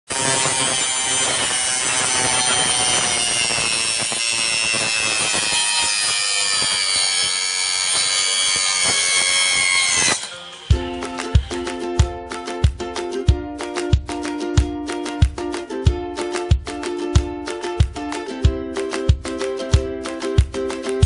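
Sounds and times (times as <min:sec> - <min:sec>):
circular saw whining: 0:00.1 - 0:11.8
saw cutting wood: 0:00.1 - 0:11.9.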